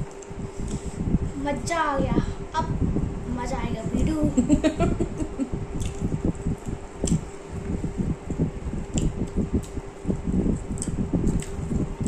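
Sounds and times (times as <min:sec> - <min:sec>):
steady low hum: 0:00.0 - 0:12.0
chewing and mashing food: 0:05.8 - 0:07.3, 0:08.3 - 0:09.8, 0:10.5 - 0:11.9.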